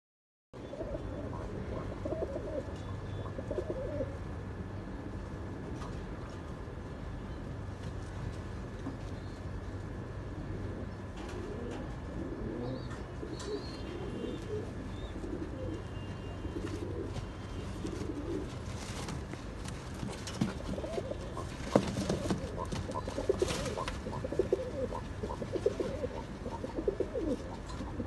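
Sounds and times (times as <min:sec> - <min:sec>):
pigeons cooing: 0:00.6 - 0:04.4, 0:10.1 - 0:19.3, 0:19.9 - 0:28.0
steady low hum: 0:00.6 - 0:28.0.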